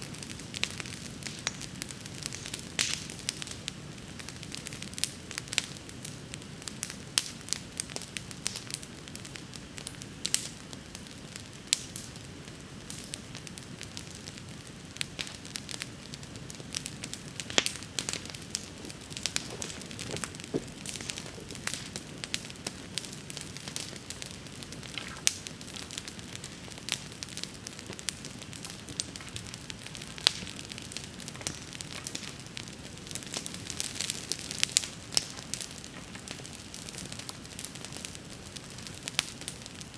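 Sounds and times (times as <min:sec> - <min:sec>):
bonfire crackling and popping: 0:00.0 - 0:39.9
low rush of flame: 0:16.4 - 0:31.3.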